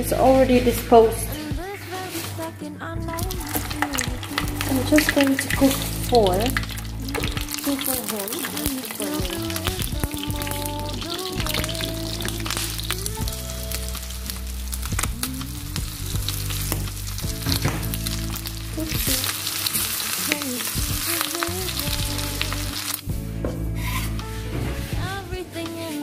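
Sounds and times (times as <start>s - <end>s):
background music: 0.0s - 26.0s
patties sizzling in oil: 3.1s - 23.1s.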